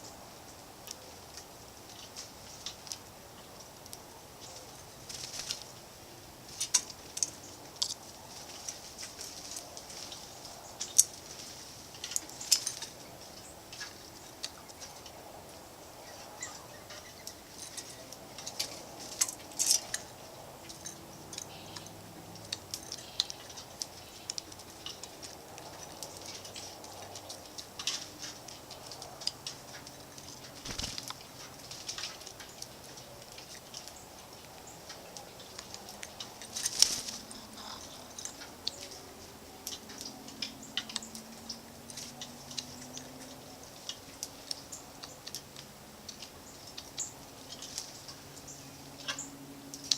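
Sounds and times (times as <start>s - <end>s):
sharp ticks and chips: 17.0s - 49.9s.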